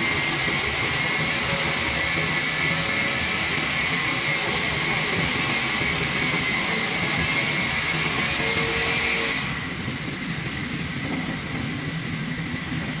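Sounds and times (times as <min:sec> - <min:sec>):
sawmill saw whining: 0:00.0 - 0:09.9.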